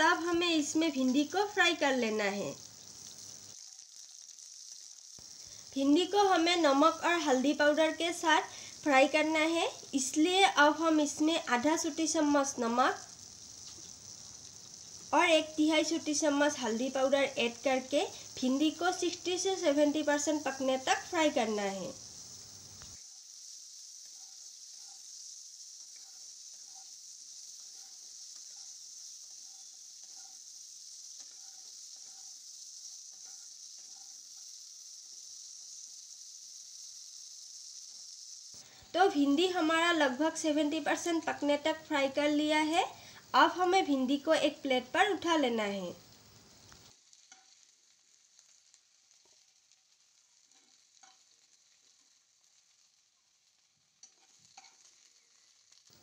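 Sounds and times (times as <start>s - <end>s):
okra sizzling in hot oil: 0.0s - 56.0s
spatula scraping a pan: 23.0s - 34.6s, 47.1s - 47.6s, 50.4s - 51.5s, 54.0s - 55.4s
spoon scraping and tapping: 47.3s - 47.6s, 54.0s - 54.9s.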